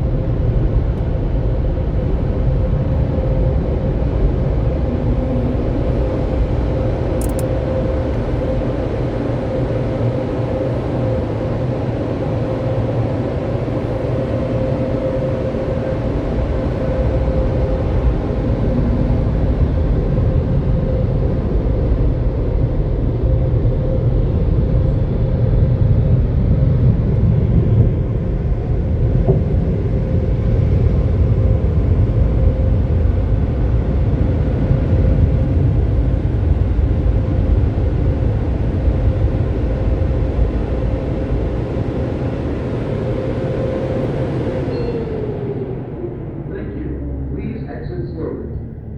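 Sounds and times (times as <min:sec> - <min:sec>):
fan hum: 0:00.0 - 0:21.6, 0:33.0 - 0:48.9.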